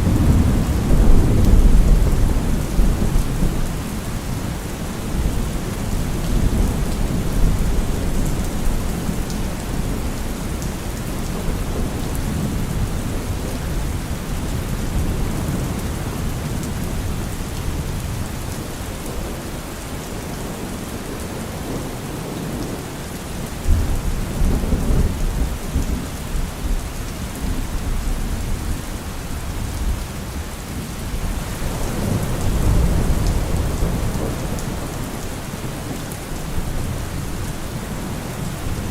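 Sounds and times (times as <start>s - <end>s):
thunder rumbling: 0.0s - 19.5s, 30.7s - 38.9s
rain falling on leaves: 0.0s - 38.9s.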